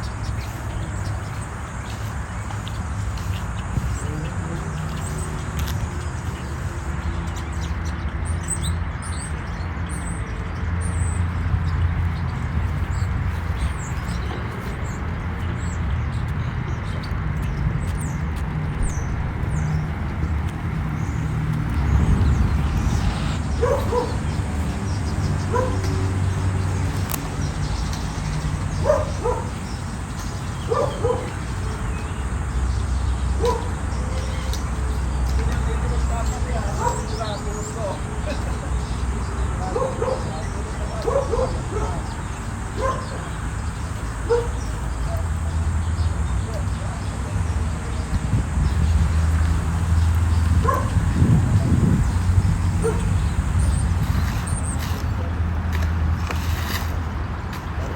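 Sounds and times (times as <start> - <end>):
small birds chirping: 0.0 - 57.9
dog barking: 23.6 - 24.2, 25.5 - 25.9, 28.8 - 29.6, 30.7 - 31.4, 33.4 - 33.7, 36.8 - 37.1, 39.7 - 42.2, 42.8 - 43.2, 44.2 - 45.2, 50.6 - 51.0, 52.8 - 53.1.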